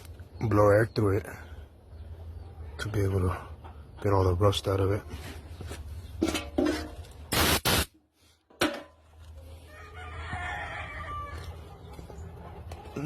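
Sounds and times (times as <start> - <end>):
compressed air blow gun hiss: 7.3 - 7.9.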